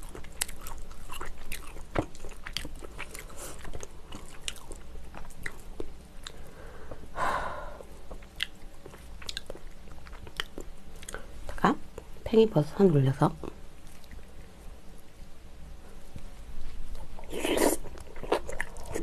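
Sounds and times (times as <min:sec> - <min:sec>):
close chewing with wet mouth clicks: 0:00.0 - 0:06.5, 0:08.0 - 0:11.2, 0:16.9 - 0:19.0.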